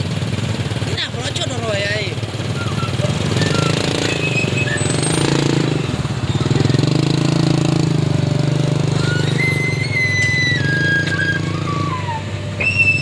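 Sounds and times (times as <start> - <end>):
heavy vehicle engine running: 0.0 - 13.0
high whistle tone: 2.5 - 5.4, 8.8 - 13.0.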